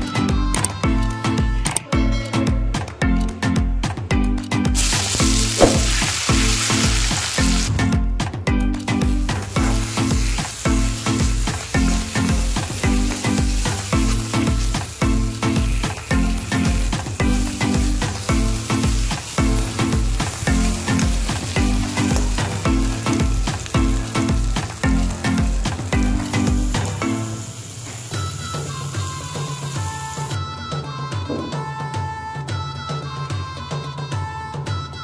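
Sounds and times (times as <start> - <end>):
background music with steady beat: 0.0 - 35.0
paste sizzling in hot oil: 4.8 - 7.8, 8.9 - 30.4.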